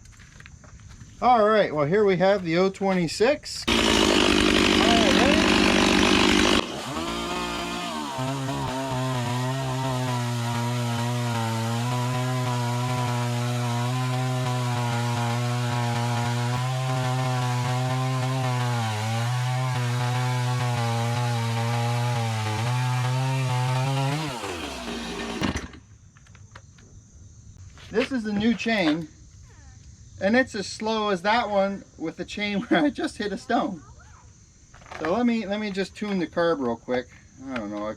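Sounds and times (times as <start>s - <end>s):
chainsaw cutting log: 3.7s - 25.8s.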